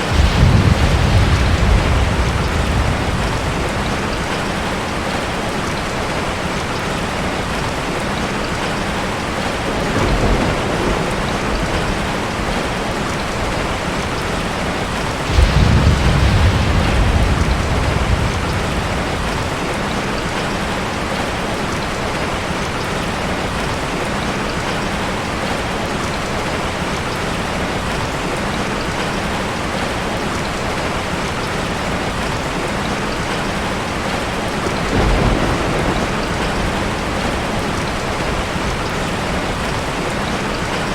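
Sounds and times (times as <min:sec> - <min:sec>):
thunder rumbling: 0:00.0 - 0:23.0, 0:32.6 - 0:40.9
heavy rain falling: 0:00.0 - 0:40.9.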